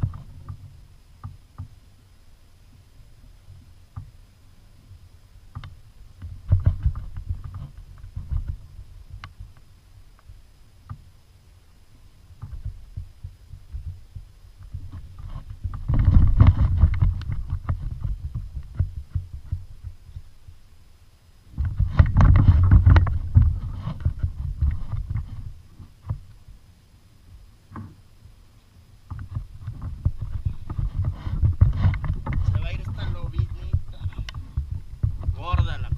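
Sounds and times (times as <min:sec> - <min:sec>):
rumbling knocking on kayak: 0:05.5 - 0:09.6, 0:12.4 - 0:20.3, 0:29.1 - 0:35.9.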